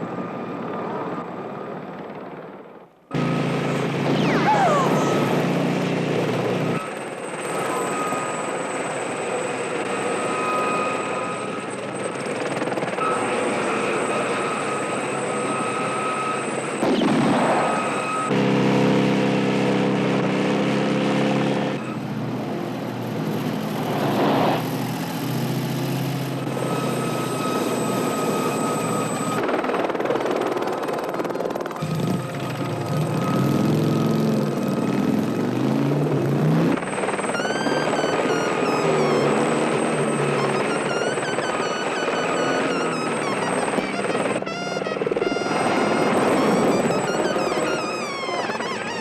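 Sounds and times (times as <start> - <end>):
helicopter rotor and engine: 0.0 - 49.0.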